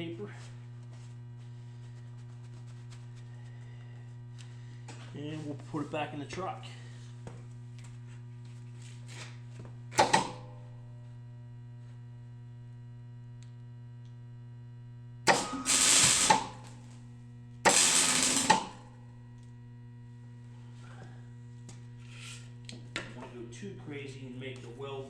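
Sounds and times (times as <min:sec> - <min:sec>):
welder humming: 0:00.0 - 0:25.0
welding arc crackle: 0:15.3 - 0:19.6.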